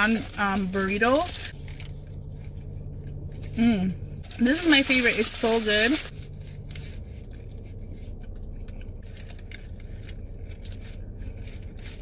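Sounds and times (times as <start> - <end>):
low hum: 0.0 - 12.0
person chewing food: 6.3 - 12.0.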